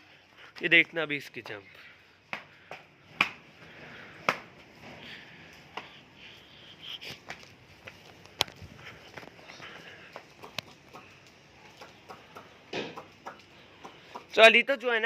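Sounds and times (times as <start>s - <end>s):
hooves tapping on hard ground: 0.2s - 14.5s.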